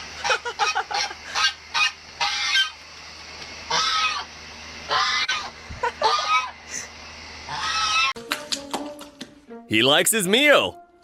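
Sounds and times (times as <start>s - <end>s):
farm fowl calling: 0.0s - 2.8s, 3.7s - 6.8s, 7.4s - 8.2s.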